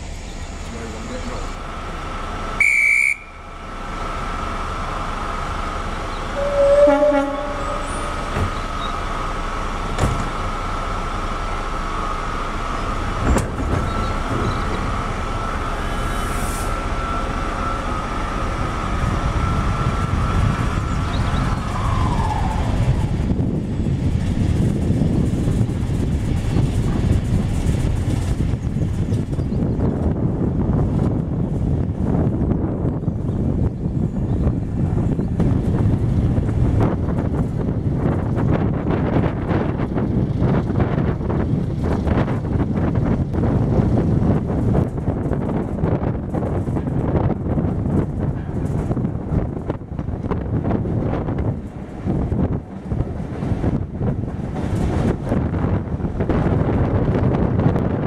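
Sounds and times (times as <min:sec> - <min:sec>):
steady whine: 0:00.0 - 0:28.6
train running on rails: 0:00.0 - 0:58.0
guard's whistle: 0:02.6 - 0:03.4
locomotive horn toot: 0:02.6 - 0:03.5, 0:06.3 - 0:08.9.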